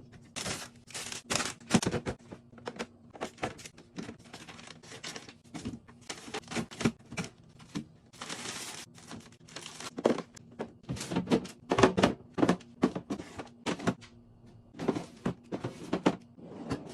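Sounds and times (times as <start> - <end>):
plastic containers clicking and knocking: 1.4 - 8.0, 9.0 - 14.0
package rustling: 3.2 - 10.4.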